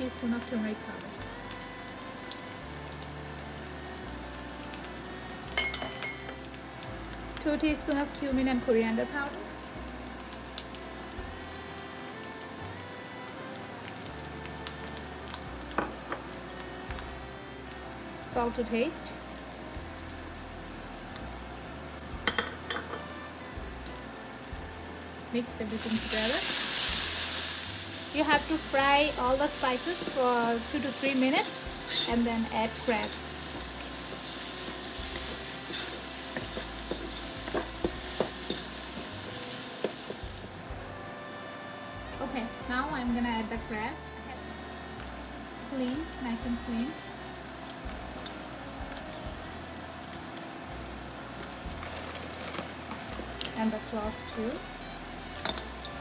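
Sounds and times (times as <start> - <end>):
spices sizzling in oil: 0.0 - 56.0
wooden spatula scraping and tapping pan: 31.8 - 39.2, 39.8 - 40.2.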